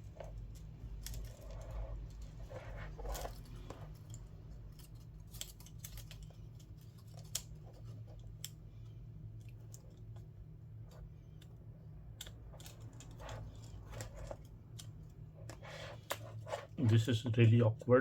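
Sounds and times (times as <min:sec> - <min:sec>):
steady low hum: 0:00.0 - 0:18.0
small tools clicking: 0:03.1 - 0:08.6.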